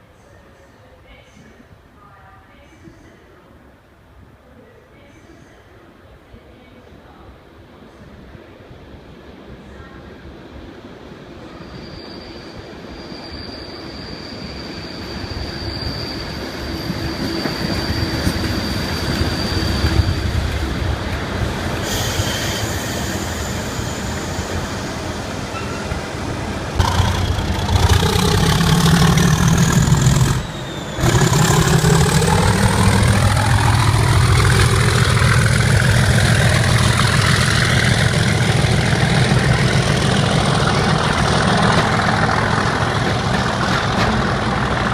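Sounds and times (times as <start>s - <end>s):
high rising whistle: 11.6s - 20.4s, 27.1s - 40.3s
diesel locomotive engine working hard: 15.3s - 44.9s.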